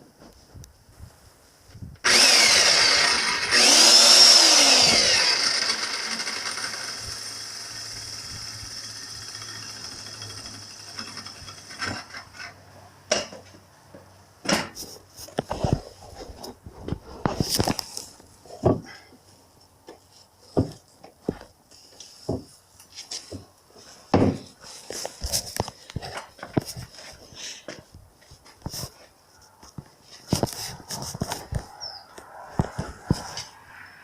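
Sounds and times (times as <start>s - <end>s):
power tool running: 2.0s - 12.2s.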